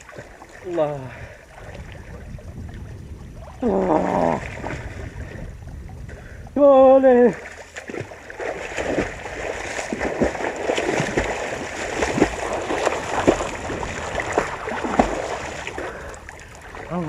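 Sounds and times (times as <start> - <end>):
water splashing and gurgling: 0.0 - 17.0.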